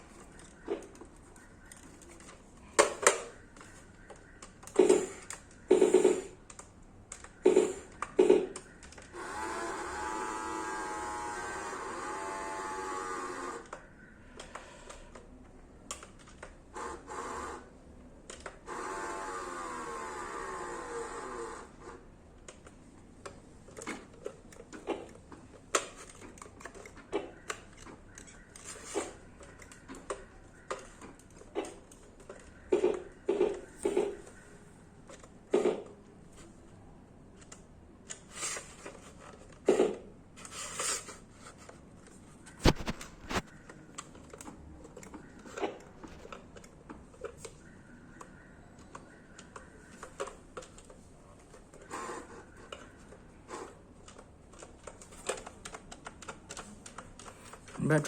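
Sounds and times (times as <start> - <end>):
small electric motor whirring: 9.2 - 13.7, 18.6 - 22.0.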